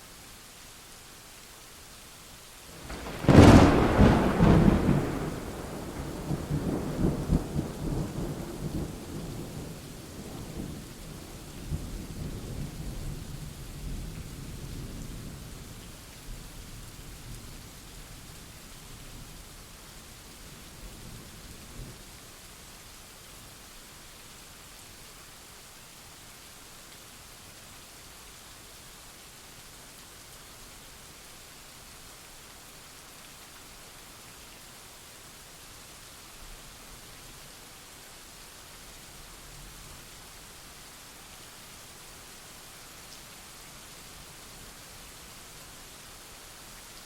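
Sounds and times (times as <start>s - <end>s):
steady rain: 0.0s - 47.0s
thunder crack and rumble: 2.8s - 9.7s.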